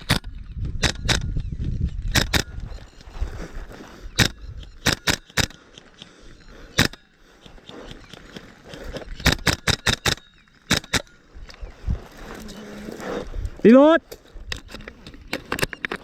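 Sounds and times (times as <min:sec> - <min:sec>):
airsoft rifle shots: 0:02.1 - 0:02.5, 0:04.2 - 0:05.6, 0:06.8 - 0:07.1, 0:09.2 - 0:11.2.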